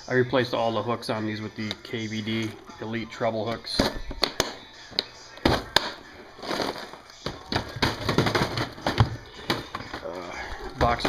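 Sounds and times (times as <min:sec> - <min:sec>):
plastic fishing lures clattering: 0:05.4 - 0:11.0.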